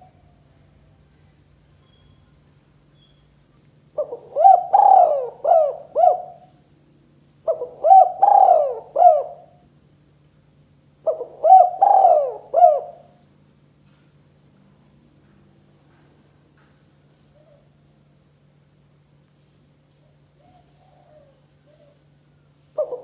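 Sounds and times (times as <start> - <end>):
dove cooing: 4.0 - 6.6, 7.4 - 9.6, 11.0 - 13.2, 20.4 - 22.0, 22.8 - 23.0.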